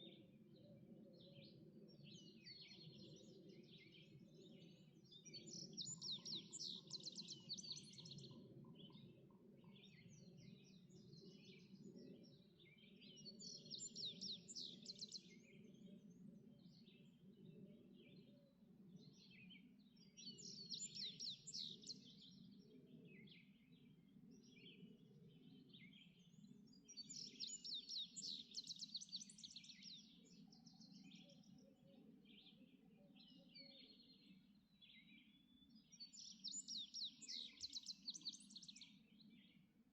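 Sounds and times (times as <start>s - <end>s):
soft bird chirps: 19.2s - 39.7s.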